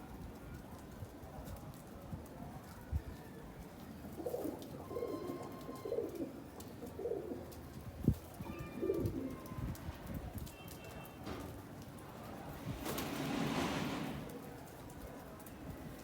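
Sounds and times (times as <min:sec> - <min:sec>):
pigeon cooing: 0:04.2 - 0:07.5, 0:08.7 - 0:09.5.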